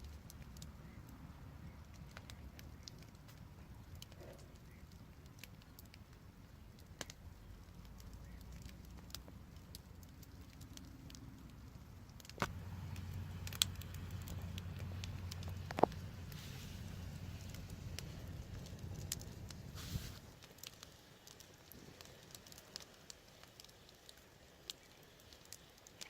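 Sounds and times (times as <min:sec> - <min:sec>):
low steady rumble: 0:00.0 - 0:20.6
wood fire crackling: 0:00.0 - 0:26.0.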